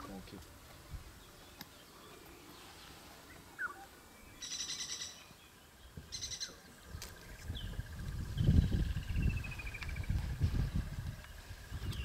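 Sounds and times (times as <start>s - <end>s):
bird chirp: 1.1s - 12.0s
rapid trilled bird calls: 3.5s - 10.2s.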